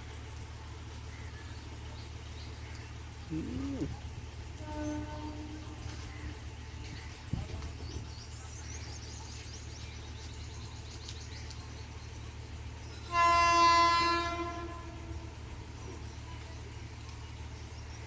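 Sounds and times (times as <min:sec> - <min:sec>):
low steady rumble: 0:00.0 - 0:18.0
locomotive air horn blast: 0:04.5 - 0:06.4, 0:13.0 - 0:15.8.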